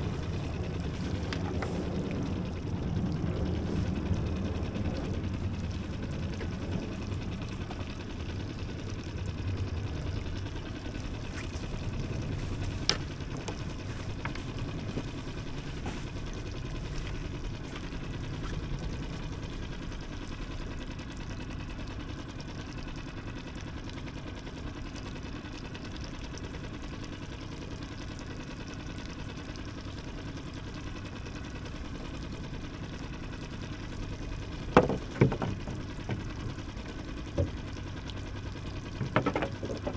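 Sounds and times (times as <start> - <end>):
small boat engine running: 0.0 - 39.9
loud knocks: 34.8 - 36.6, 39.0 - 39.9.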